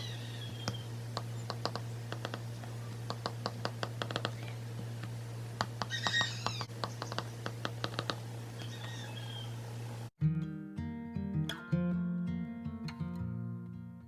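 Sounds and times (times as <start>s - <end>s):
high chirping call: 0.0s - 1.5s, 5.8s - 7.6s, 8.6s - 9.8s
steady low hum: 0.0s - 10.1s.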